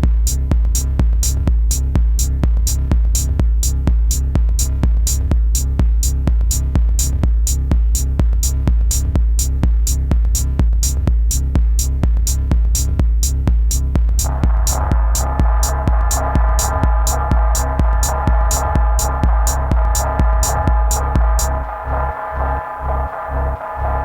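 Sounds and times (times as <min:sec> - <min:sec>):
deep pulsing bass line: 0:00.0 - 0:24.0
drum machine beat: 0:14.1 - 0:24.0
bright hi-hats: 0:14.2 - 0:24.0.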